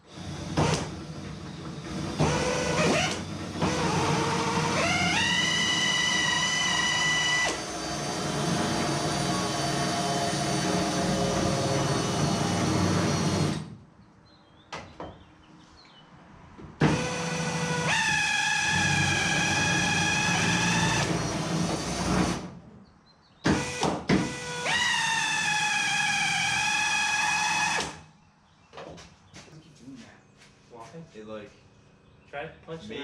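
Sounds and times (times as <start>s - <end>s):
handheld power tool motor: 0.1s - 13.7s, 16.9s - 22.5s.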